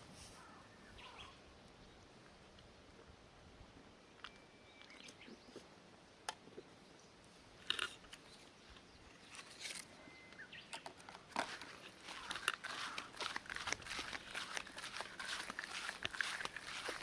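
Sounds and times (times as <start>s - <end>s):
crunching and clicking: 7.6s - 8.3s, 10.8s - 17.0s.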